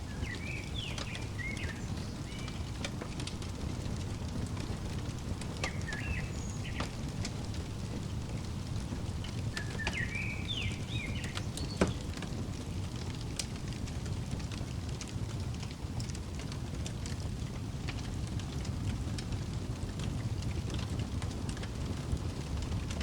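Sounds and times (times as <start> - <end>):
steady low rumble: 0.0 - 14.7
sharp fire pops: 0.0 - 17.2
fireplace crackling: 0.0 - 23.0.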